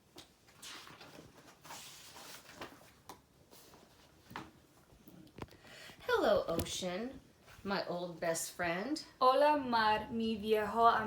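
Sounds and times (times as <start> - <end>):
book pages rustling: 0.1 - 5.4.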